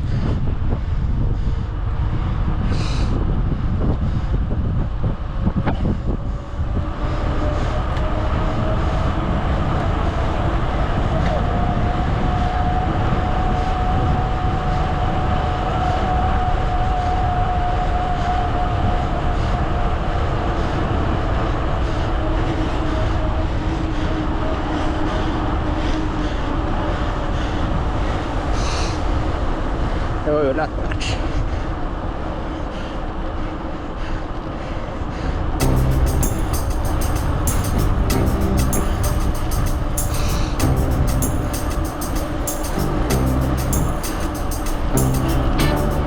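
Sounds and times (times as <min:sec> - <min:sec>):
wind on microphone: 0:00.0 - 0:30.2, 0:35.6 - 0:46.0
steady whine: 0:35.6 - 0:46.0.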